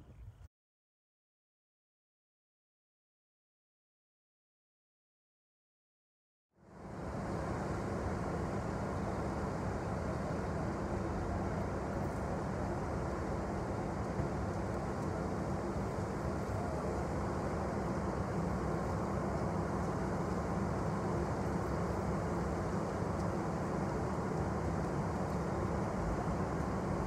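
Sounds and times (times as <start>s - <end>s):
freight train wheels rumbling on rail: 7.5s - 27.0s.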